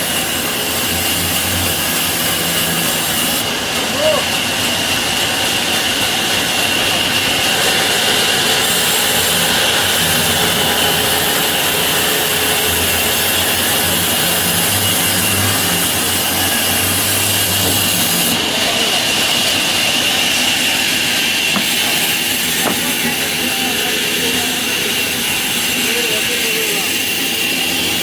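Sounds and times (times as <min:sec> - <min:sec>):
saw cutting through branch: 0:05.9 - 0:28.0.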